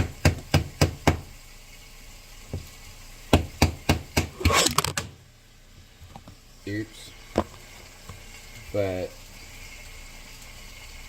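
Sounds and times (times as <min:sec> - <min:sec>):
knife chopping on wooden board: 0:03.3 - 0:05.0.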